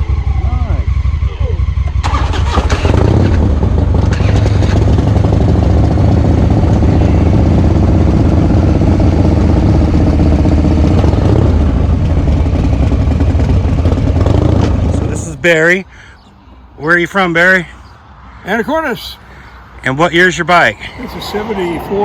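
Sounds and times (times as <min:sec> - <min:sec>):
motorcycle engine running: 0:00.0 - 0:15.3.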